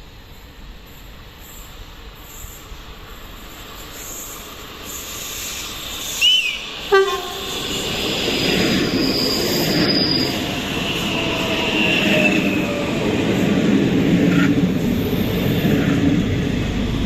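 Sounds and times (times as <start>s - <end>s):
train rumble: 0.0s - 17.0s
high wheel squeal: 4.0s - 13.1s
train horn blast: 6.2s - 7.8s.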